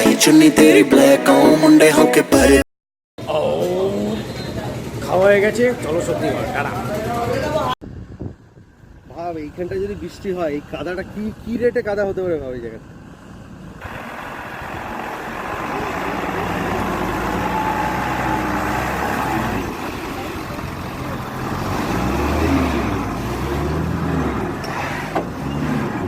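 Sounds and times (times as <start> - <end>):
road and wind noise: 7.8 - 26.0.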